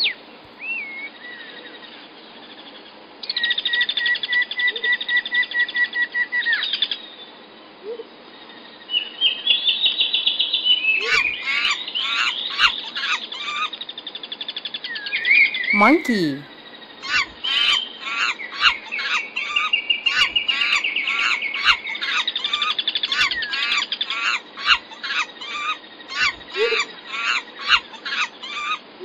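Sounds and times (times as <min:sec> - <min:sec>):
faint background noise: 0:00.0 - 0:29.0
songbirds trilling and chirping: 0:08.3 - 0:15.7, 0:16.7 - 0:28.9.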